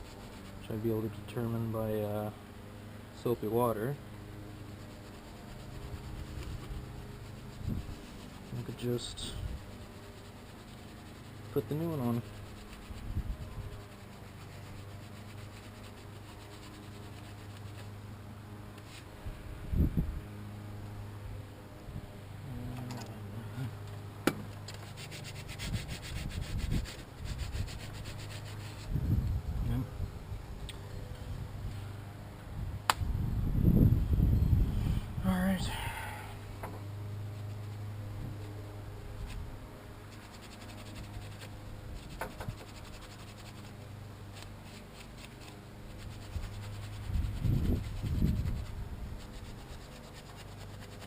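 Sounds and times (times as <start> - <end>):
hand scraping strokes: 0.0 - 2.2, 3.2 - 18.0, 24.6 - 29.0, 37.1 - 51.0
low steady hum: 0.0 - 51.0
hands scraping engine parts: 40.1 - 51.0.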